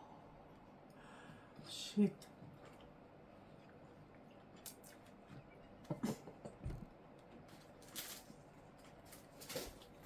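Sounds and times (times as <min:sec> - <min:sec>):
room fan hum: 0:00.0 - 0:10.0
plastic wrapper rustling: 0:07.6 - 0:10.0.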